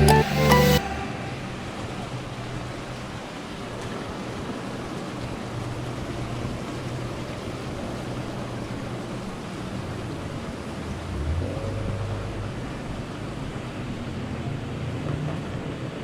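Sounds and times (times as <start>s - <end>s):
even rushing sound: 0.0s - 2.6s, 10.8s - 13.2s
low engine hum: 10.4s - 15.7s.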